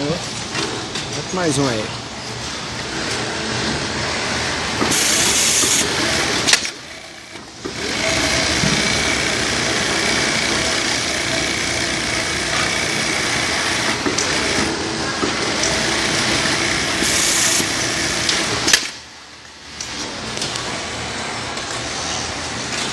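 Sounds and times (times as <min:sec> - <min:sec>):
industrial sewing machine running: 0:02.8 - 0:18.9.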